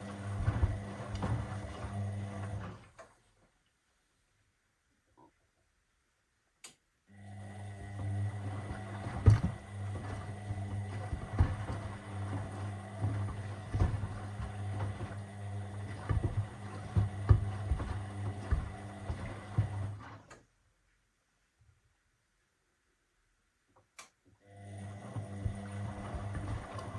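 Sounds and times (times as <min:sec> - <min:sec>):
washing machine humming: 0:00.0 - 0:03.2, 0:07.1 - 0:20.4, 0:24.5 - 0:26.9
sneakers knocking against drum: 0:16.1 - 0:19.8.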